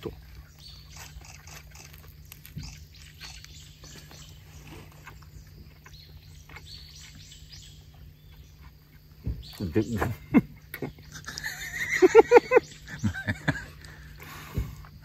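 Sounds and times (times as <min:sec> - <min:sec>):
person chewing crusty bread: 0:00.0 - 0:09.1.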